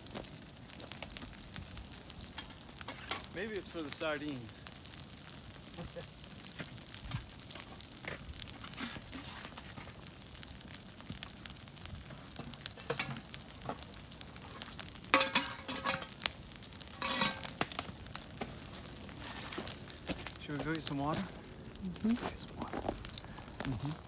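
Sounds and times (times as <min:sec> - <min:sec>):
small crackles and clicks: 0:00.0 - 0:24.0
cooking gear clinking and rattling: 0:02.4 - 0:03.4, 0:12.8 - 0:13.8, 0:14.4 - 0:16.2, 0:16.9 - 0:17.6.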